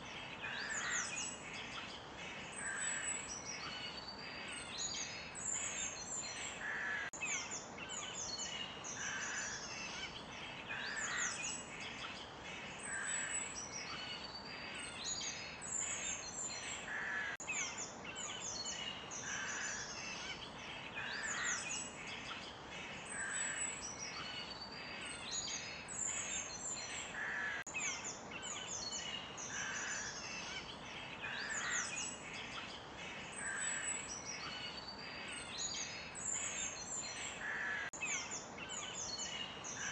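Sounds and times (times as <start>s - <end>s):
forest birds chirping: 0.0s - 39.9s
steady background hiss: 0.0s - 39.9s.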